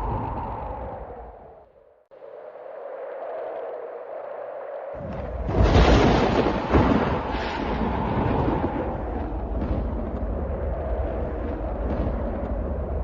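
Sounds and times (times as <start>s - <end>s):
thunder crack and rumble: 5.0s - 13.0s.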